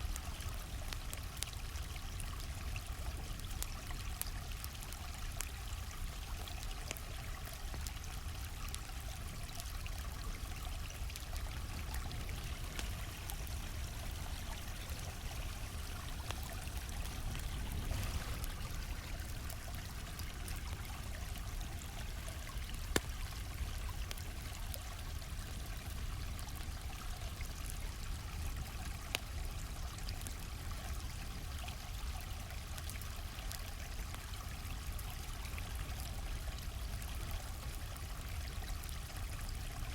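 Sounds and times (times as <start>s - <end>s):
stream flowing: 0.0s - 30.2s
campfire crackling: 0.0s - 39.9s.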